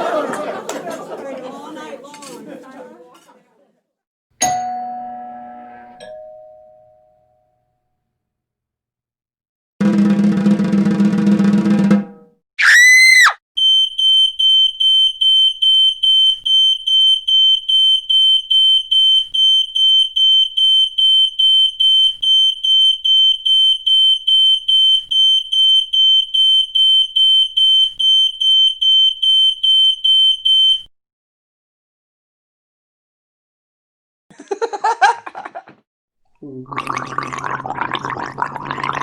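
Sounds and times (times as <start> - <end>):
fire alarm beeping: 13.6 - 30.9.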